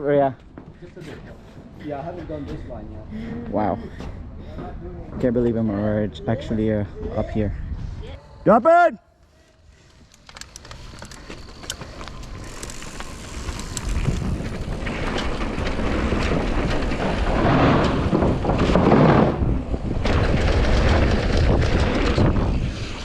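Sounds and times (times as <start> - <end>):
wind buffeting microphone: 6.2 - 8.3, 10.8 - 23.0
bike clicking and rattling: 9.3 - 23.0
bike tyres rumbling over dirt: 9.9 - 23.0.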